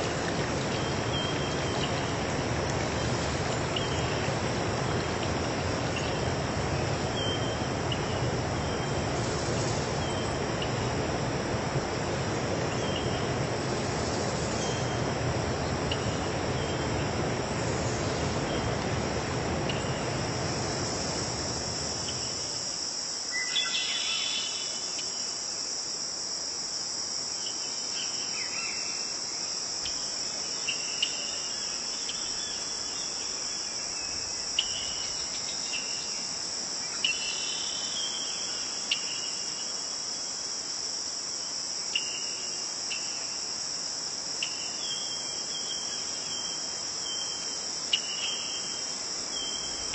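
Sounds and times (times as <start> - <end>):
insects chirping: 0.0 - 49.9.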